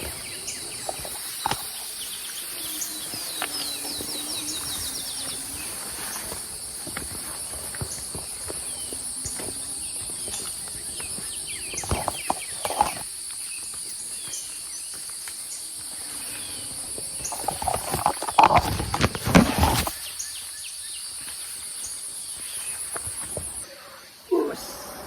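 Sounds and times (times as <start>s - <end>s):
high-pitched insect chorus: 0.0s - 25.0s
thumps and rustles: 11.1s - 13.1s, 17.2s - 20.0s.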